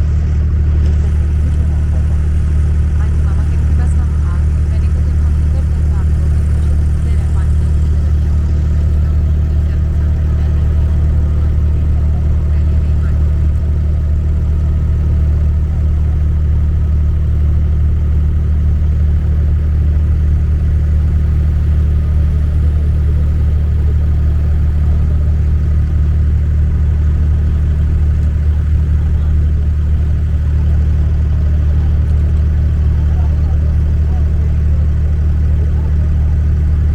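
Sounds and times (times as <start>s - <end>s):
boat engine droning: 0.0s - 36.9s.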